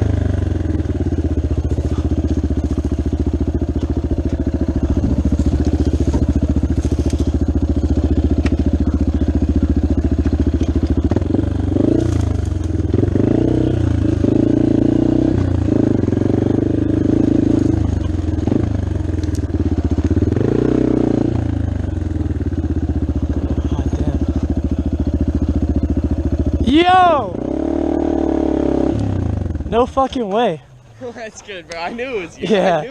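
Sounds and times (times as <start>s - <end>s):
dirt bike engine revving: 0.0s - 30.5s.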